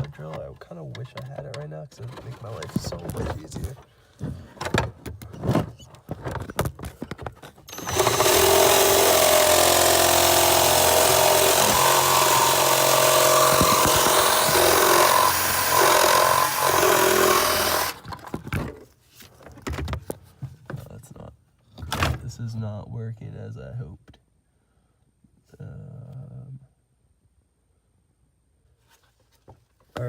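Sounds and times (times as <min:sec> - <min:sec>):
power drill drilling through steel: 0:07.7 - 0:18.1.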